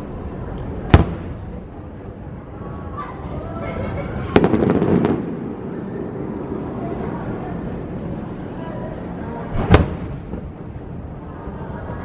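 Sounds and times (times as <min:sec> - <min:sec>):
crowd chatter: 0:00.0 - 0:12.0
firework boom: 0:00.9 - 0:01.6, 0:04.3 - 0:06.1, 0:09.5 - 0:11.1.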